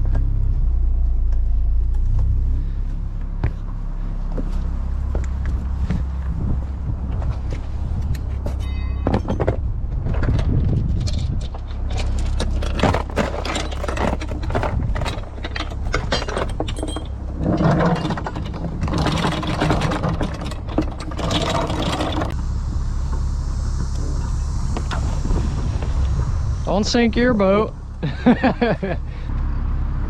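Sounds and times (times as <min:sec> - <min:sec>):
boat engine idling: 0:00.0 - 0:09.9, 0:11.5 - 0:29.7
gear knocking and scraping on deck: 0:03.3 - 0:22.4.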